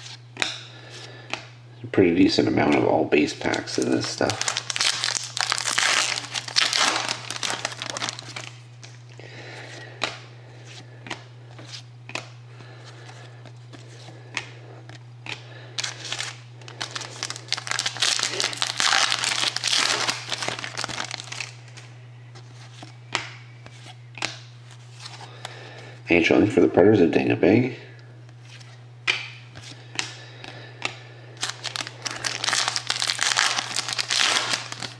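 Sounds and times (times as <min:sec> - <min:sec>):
low electrical hum: 0:00.0 - 0:34.9
card wrappers tearing and crinkling: 0:03.4 - 0:08.6, 0:15.8 - 0:21.8, 0:31.4 - 0:34.9.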